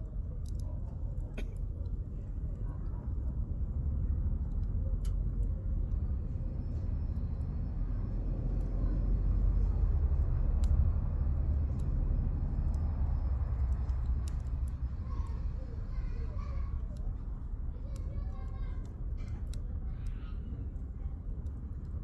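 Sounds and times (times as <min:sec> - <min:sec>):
campfire crackling and popping: 0:07.4 - 0:22.0.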